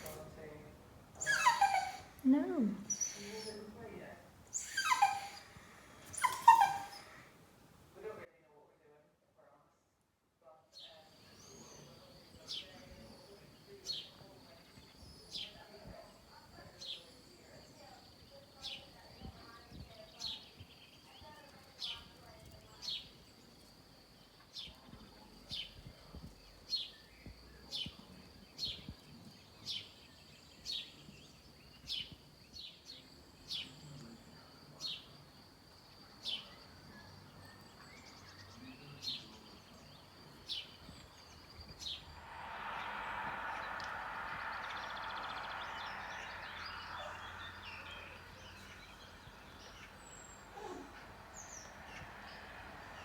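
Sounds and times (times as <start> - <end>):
rushing noise: 41.8 - 53.0
bird high falling call: 42.0 - 49.1.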